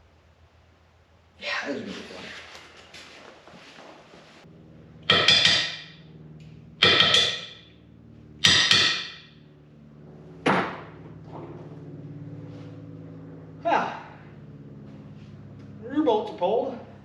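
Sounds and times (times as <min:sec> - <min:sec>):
steady low hum: 0:00.0 - 0:17.0
impact wrench hammering: 0:05.0 - 0:06.0, 0:06.8 - 0:07.7, 0:08.4 - 0:09.4.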